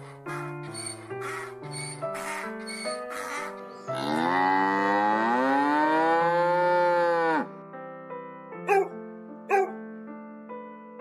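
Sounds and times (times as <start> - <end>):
soft piano music: 0.0 - 11.0
cow mooing: 3.9 - 7.5
small dog barking: 8.7 - 9.8.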